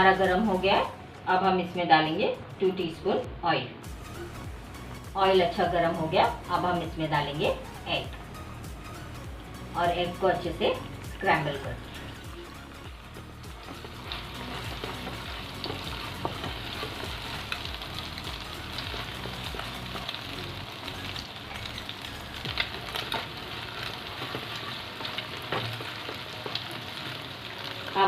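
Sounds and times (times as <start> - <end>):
egg sizzling in hot oil: 11.0 - 28.0.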